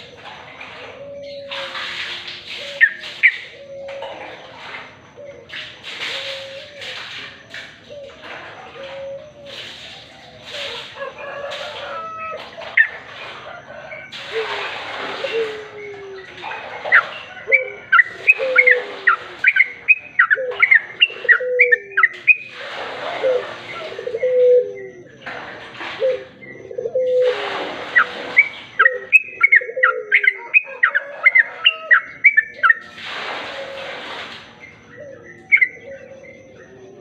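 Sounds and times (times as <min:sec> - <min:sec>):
bird chirping: 0:00.0 - 0:11.1, 0:11.8 - 0:22.6, 0:26.0 - 0:32.9, 0:34.5 - 0:37.0
rushing hiss bursts: 0:22.5 - 0:23.8, 0:32.8 - 0:34.6.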